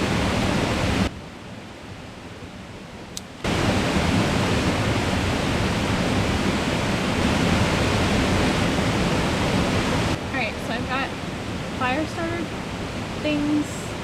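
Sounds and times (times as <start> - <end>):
creek water rushing: 0.0 - 14.0.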